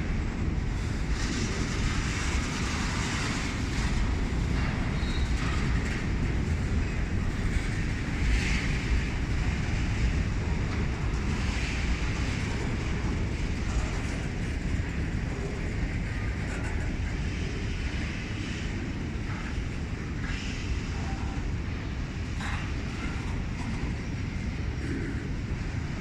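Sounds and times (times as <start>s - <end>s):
freight train rolling by: 0.0s - 26.0s.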